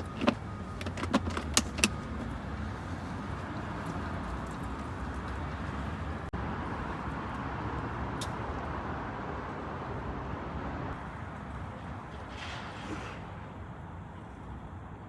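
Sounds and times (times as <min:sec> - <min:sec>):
passing road traffic rumble: 0:00.0 - 0:15.0.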